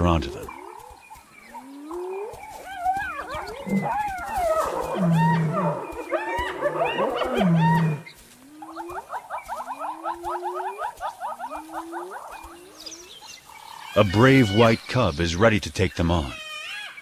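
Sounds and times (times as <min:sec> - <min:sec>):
hyenas yelping and cackling: 0:00.5 - 0:14.1
hyenas whooping: 0:01.6 - 0:13.1.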